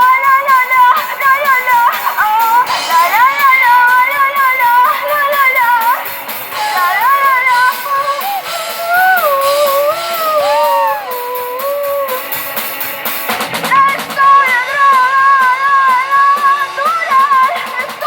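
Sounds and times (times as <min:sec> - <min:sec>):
drums: 0:00.0 - 0:18.0
guitar: 0:00.0 - 0:18.0
cymbal and drum strokes: 0:01.1 - 0:18.0
high voice singing: 0:13.5 - 0:16.4.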